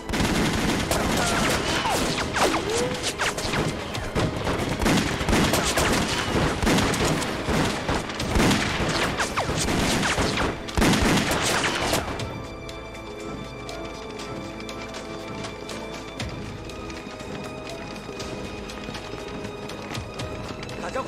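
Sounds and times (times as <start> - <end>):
rapid gunfire: 0.0 - 12.3.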